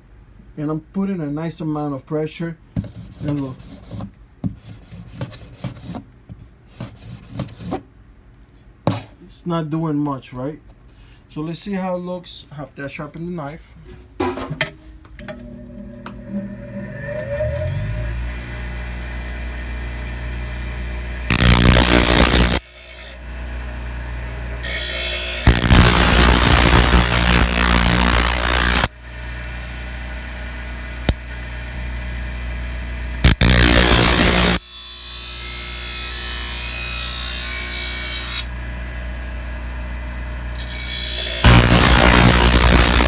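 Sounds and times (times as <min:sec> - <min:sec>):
bench grinder spinning: 0:15.2 - 0:28.9, 0:33.2 - 0:38.6, 0:40.5 - 0:43.0
knife blade grinding on wheel: 0:21.3 - 0:23.2, 0:24.6 - 0:26.2, 0:33.3 - 0:38.5, 0:40.6 - 0:43.0.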